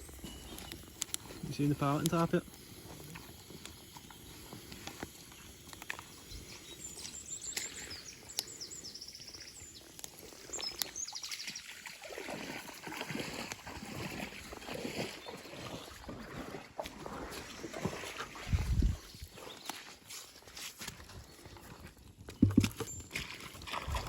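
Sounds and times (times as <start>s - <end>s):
small birds chirping and trilling: 0.0s - 12.0s, 17.4s - 20.2s.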